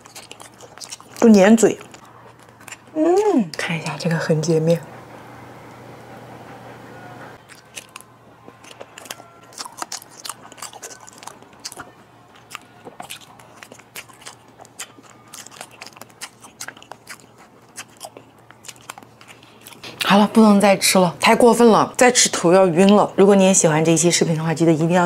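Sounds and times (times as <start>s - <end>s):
chewing mouth clicks: 0.0s - 1.2s, 7.4s - 20.1s.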